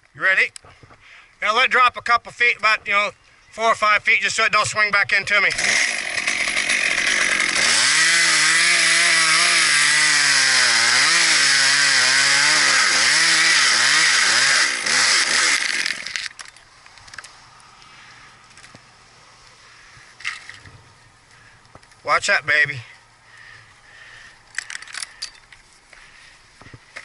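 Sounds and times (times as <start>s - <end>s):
chainsaw cutting wood: 5.2s - 16.4s.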